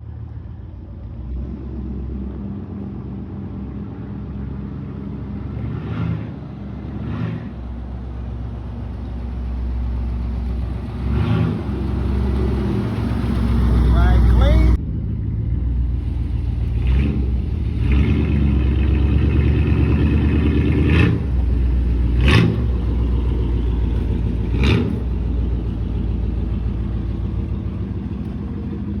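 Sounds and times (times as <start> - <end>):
engine idling with throttle blips: 6.6 - 29.0.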